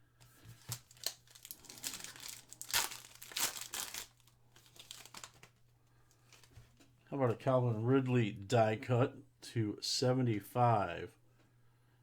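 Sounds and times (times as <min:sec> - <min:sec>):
foil wrapper crinkling and tearing: 0:00.3 - 0:06.5.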